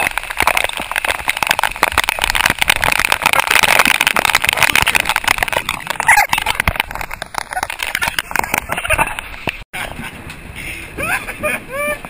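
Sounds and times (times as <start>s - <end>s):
heavy rain falling: 0.0s - 9.4s.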